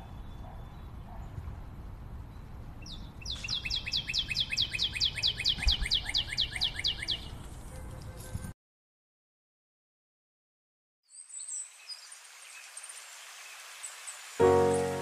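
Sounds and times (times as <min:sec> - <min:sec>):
songbird trilling: 0:02.8 - 0:07.3.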